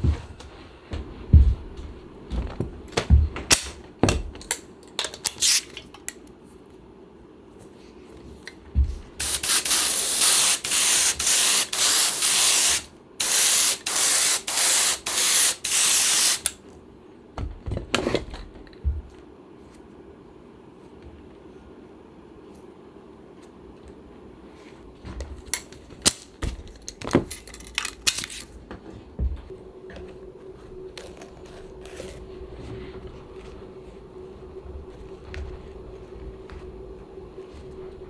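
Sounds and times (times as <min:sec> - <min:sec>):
spray gun hissing: 0:09.2 - 0:16.5.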